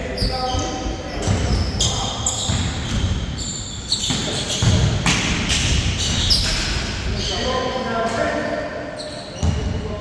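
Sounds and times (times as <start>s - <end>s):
sneaker squeaks on floor: 0.1s - 6.9s, 8.9s - 10.0s
basketball bouncing: 2.5s - 3.2s.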